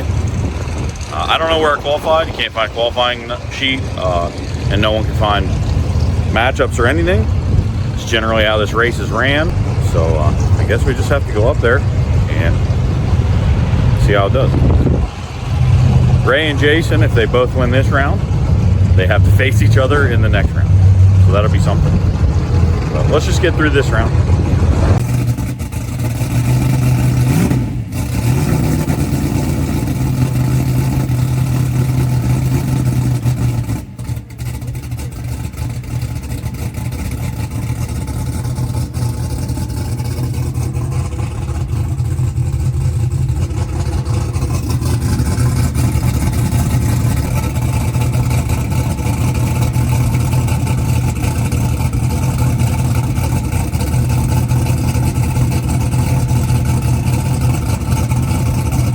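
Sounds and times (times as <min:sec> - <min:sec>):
vehicle engine running: 0:00.0 - 0:58.9.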